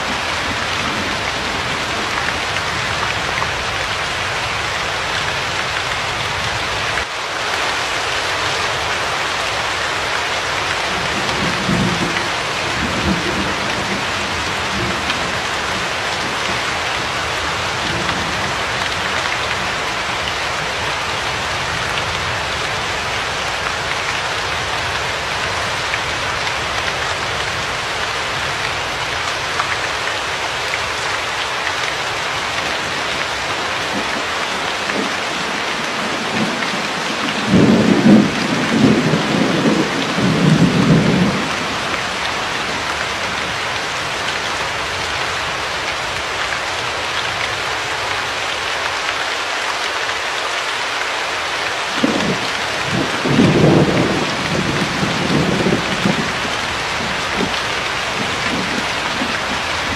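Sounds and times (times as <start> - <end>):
steady rain: 0.0 - 59.9
thunder rumbling: 10.9 - 16.8, 33.6 - 42.9, 52.0 - 59.9.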